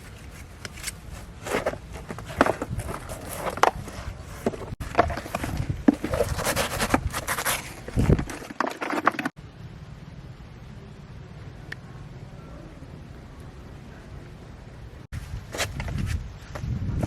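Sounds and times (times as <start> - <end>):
knocks clicks and scrapes on plastic: 0.6 - 9.4.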